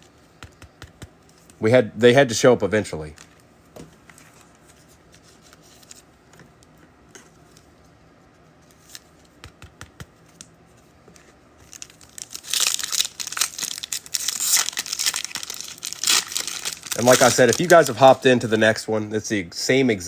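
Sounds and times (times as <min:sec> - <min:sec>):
wrapper tearing and crinkling: 0:11.6 - 0:18.2.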